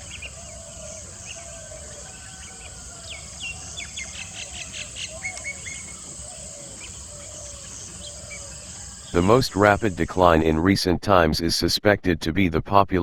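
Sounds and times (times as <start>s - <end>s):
high-pitched insect chorus: 0.0s - 10.0s
birdsong: 0.0s - 10.2s.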